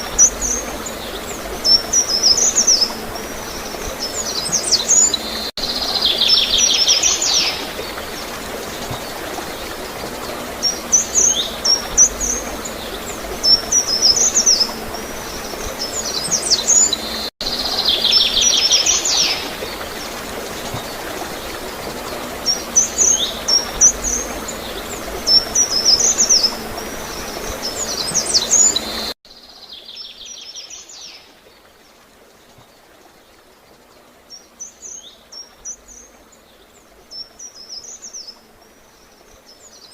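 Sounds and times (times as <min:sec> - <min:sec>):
gurgling water rushing: 0:00.0 - 0:29.2.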